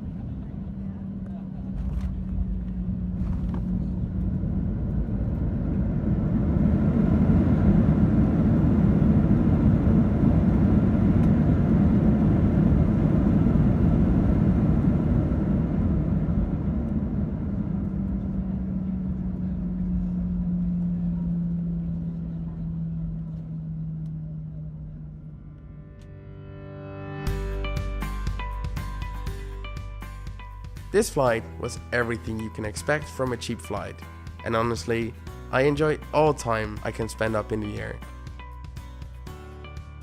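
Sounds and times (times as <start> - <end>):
engine and air rush: 0.0 - 25.7
steady engine tone: 0.0 - 40.0.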